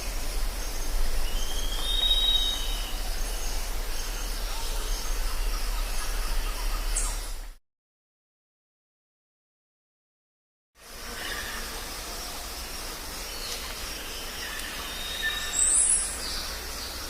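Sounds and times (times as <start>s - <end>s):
background hiss: 0.0s - 7.5s, 10.8s - 17.0s
low hum: 0.0s - 7.6s
whistled bird call: 1.2s - 3.4s, 14.5s - 16.2s.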